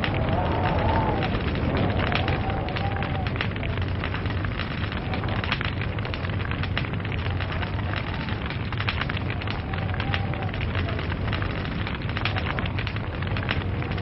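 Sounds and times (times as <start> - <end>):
fire low rumble: 0.0 - 14.0
wood crackling and popping: 0.0 - 14.0.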